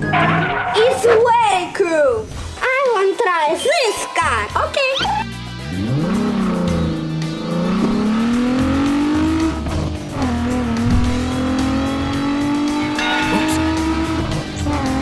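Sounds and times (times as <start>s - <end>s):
background music with steady beat: 2.3s - 15.0s
car engine revving: 5.2s - 15.0s.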